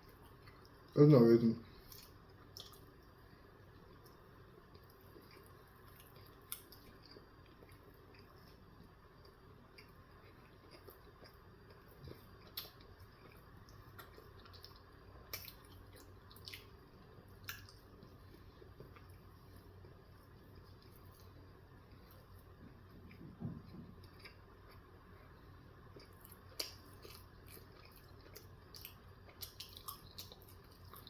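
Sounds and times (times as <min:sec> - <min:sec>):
close-miked chewing: 0:00.0 - 0:01.0, 0:01.6 - 0:31.0
wet mouth clicks and smacks: 0:01.8 - 0:02.8.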